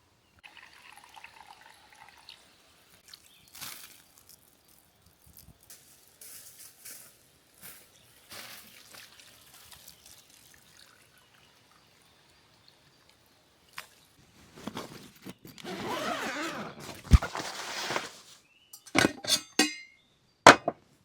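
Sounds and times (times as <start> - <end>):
liquid pouring: 0.4 - 2.4, 8.8 - 11.8.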